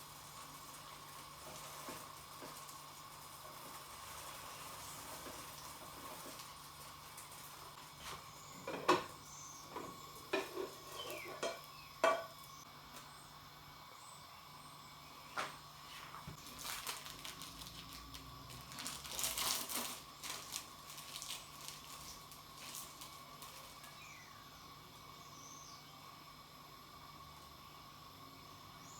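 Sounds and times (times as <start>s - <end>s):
utensils and dishes clinking: 10.3s - 12.3s.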